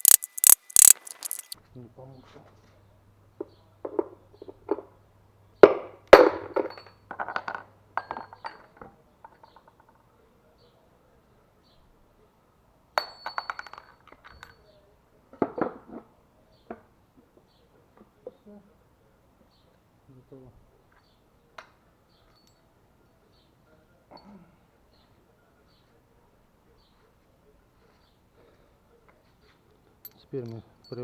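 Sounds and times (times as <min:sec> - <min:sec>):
clinks of loose metal parts: 0:00.0 - 0:01.6.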